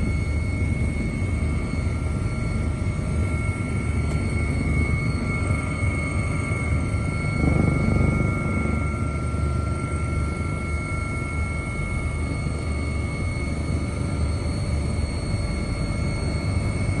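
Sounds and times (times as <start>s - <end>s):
low mechanical rumble: 0.0s - 17.0s
high whines: 2.6s - 13.3s.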